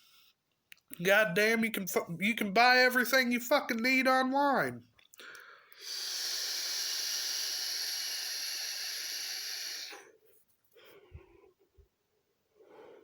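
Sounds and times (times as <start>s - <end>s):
faint breathy sounds: 5.1s - 13.0s
hissing air drawn through vape: 5.8s - 10.2s.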